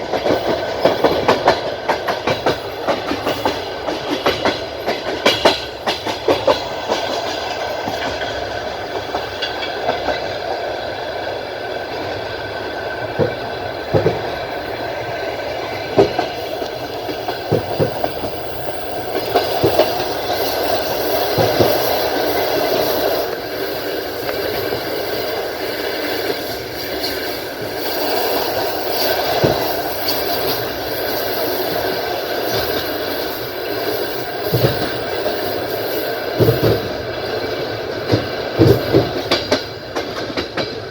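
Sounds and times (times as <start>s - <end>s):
train wheels rumbling on rails: 0.0s - 40.9s
wheels clacking over rail joints: 0.0s - 40.9s.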